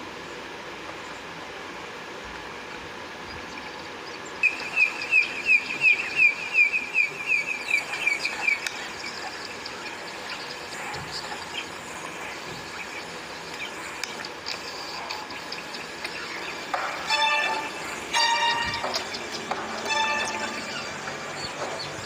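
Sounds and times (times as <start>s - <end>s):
steady hiss: 0.0s - 22.0s
bird rapid high chirps: 4.4s - 14.3s, 15.3s - 22.0s.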